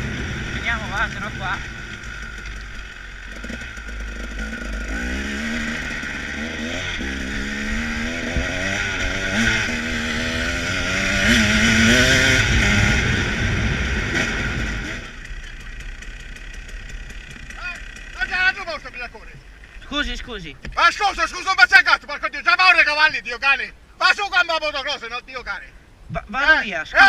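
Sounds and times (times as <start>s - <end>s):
motorcycle engine revving: 0.0s - 19.8s.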